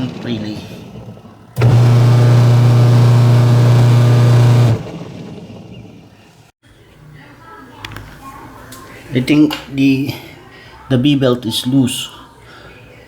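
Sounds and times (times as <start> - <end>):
washing machine motor humming: 1.6 - 5.2.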